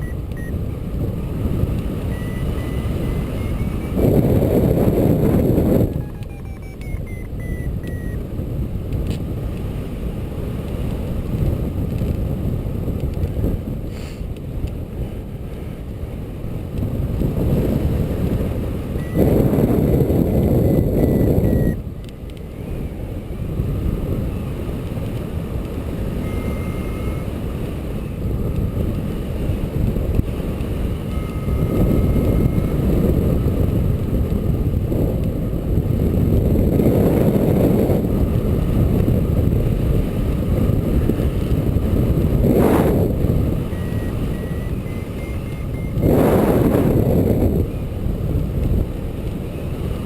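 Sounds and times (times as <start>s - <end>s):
variometer electronic beeps: 0.0s - 0.6s, 2.0s - 8.2s, 18.9s - 21.8s, 26.1s - 27.4s, 31.0s - 32.9s, 43.5s - 46.9s.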